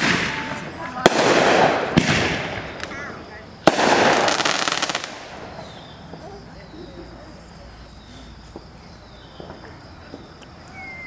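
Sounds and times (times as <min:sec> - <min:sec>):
distant fireworks pops: 0:00.0 - 0:06.6, 0:08.4 - 0:10.8
fireworks burst crackling: 0:00.0 - 0:06.6.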